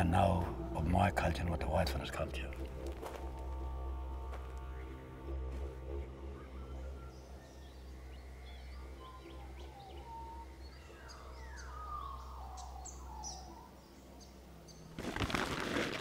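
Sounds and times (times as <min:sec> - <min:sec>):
birds chirping: 0:00.0 - 0:15.4
whistled bird calls: 0:06.2 - 0:14.0.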